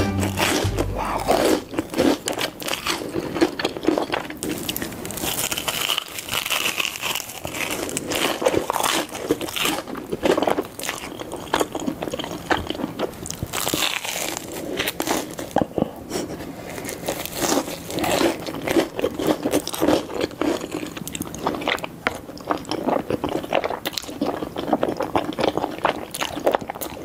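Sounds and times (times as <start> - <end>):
person biting and chewing food: 0.0 - 27.0
crisp crunches: 0.6 - 15.9, 16.7 - 21.8.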